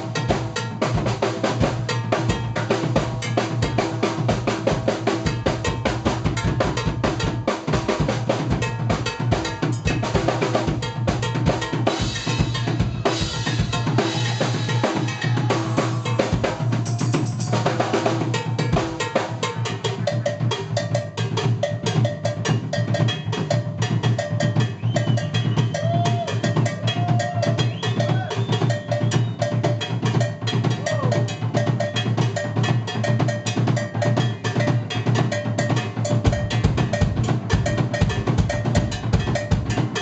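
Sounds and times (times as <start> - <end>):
jazz fusion band playing: 0.0 - 21.6
busy drum kit: 0.0 - 40.0.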